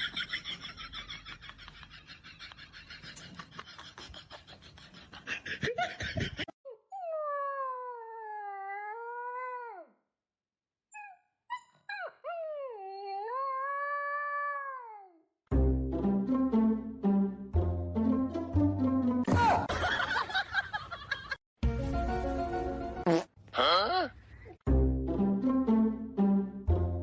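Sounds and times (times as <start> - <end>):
dog yelping: 10.9 - 15.0.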